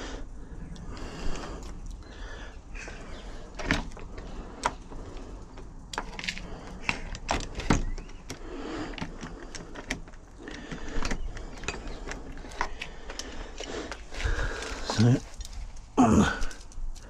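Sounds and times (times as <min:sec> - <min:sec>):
door lock clicks and clunks: 0:06.0 - 0:12.9.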